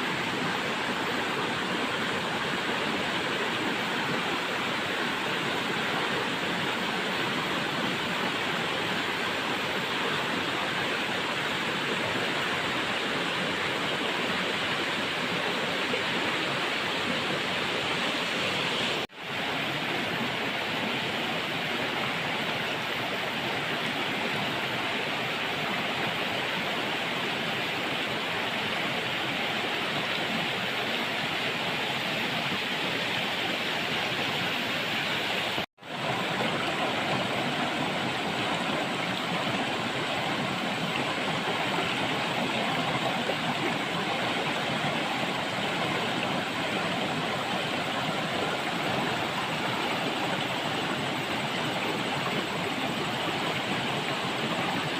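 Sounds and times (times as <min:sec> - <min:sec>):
river water rushing over rocks: 0:00.0 - 0:54.9.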